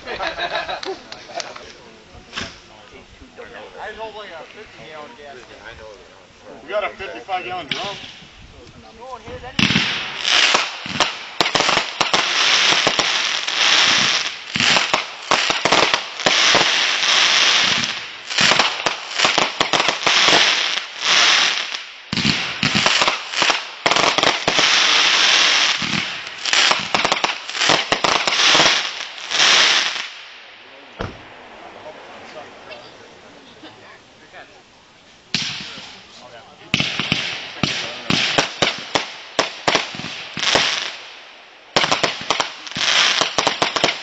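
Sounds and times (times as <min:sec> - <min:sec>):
firecrackers popping and banging: 0:09.3 - 0:30.4, 0:35.3 - 0:36.0, 0:36.7 - 0:44.0.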